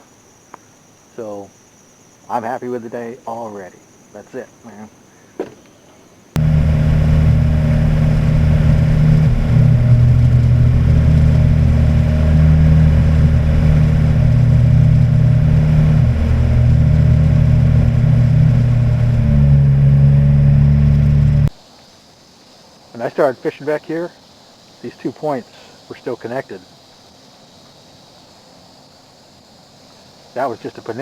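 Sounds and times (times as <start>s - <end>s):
wind: 0.0s - 31.0s
hull noise: 6.4s - 21.5s
outboard motor running: 6.4s - 21.5s.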